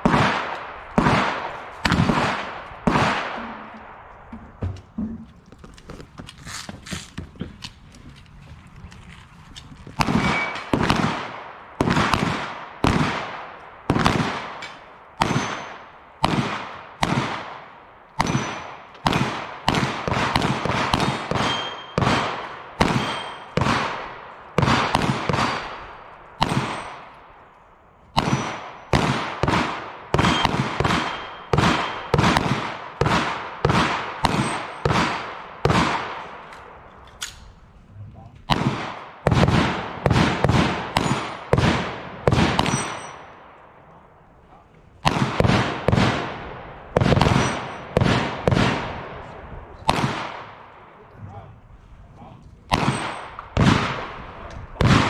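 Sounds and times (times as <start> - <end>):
gunshots with echo: 0.0 - 4.2, 10.0 - 27.3, 28.2 - 36.5, 38.5 - 43.7, 45.0 - 51.0, 52.7 - 55.0.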